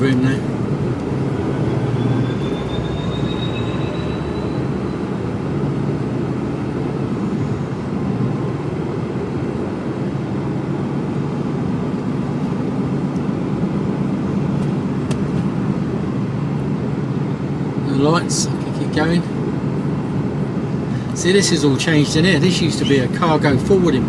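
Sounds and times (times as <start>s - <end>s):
faint high whine: 0.0s - 5.8s
diesel engine drone: 0.0s - 24.0s.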